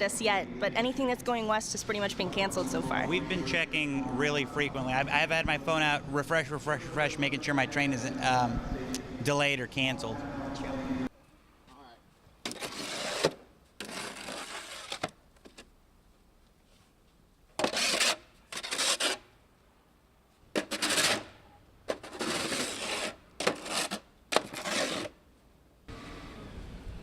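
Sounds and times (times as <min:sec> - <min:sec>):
rough scraping: 0:12.4 - 0:15.6, 0:17.6 - 0:19.3, 0:20.5 - 0:25.2.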